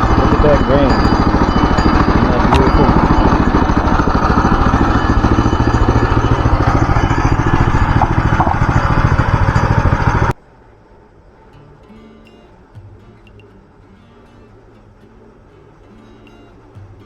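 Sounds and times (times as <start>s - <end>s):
sawmill gas engine running: 0.0s - 10.3s.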